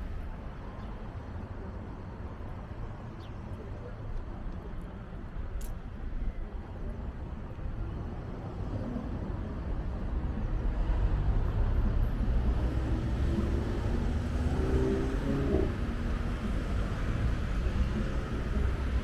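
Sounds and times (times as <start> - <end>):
road traffic rumble: 0.0 - 19.0
vehicle engine approaching: 10.9 - 18.6.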